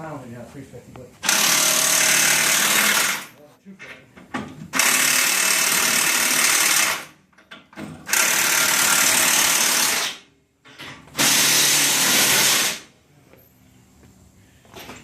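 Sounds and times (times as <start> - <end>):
impact wrench running: 1.2 - 3.4, 4.7 - 7.2, 7.9 - 10.3, 11.1 - 12.9.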